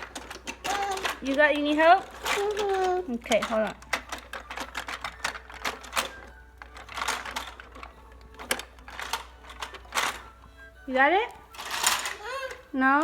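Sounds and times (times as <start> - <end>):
plastic toy train clicks and rattles: 0.0 - 10.3, 11.6 - 12.6.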